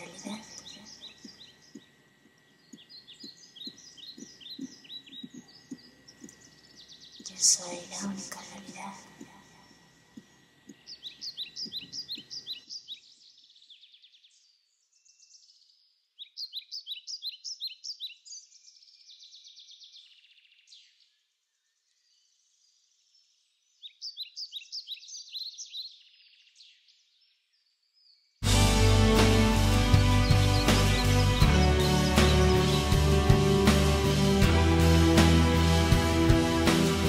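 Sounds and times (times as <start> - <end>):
faint low background sound: 0.0 - 12.6
bird chirping: 0.0 - 37.0.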